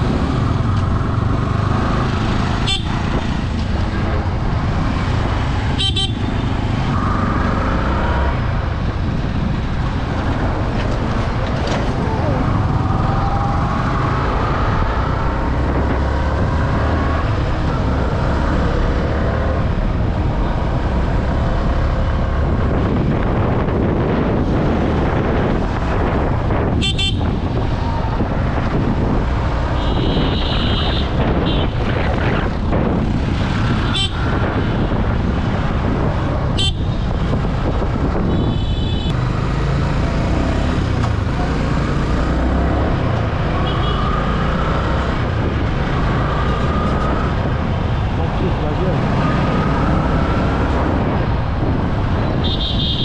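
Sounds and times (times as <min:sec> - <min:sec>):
heavy wind rush: 0:00.0 - 0:53.0
vehicle horn honking: 0:02.6 - 0:03.0, 0:05.8 - 0:06.3, 0:29.8 - 0:31.7, 0:38.3 - 0:39.1, 0:52.4 - 0:53.0.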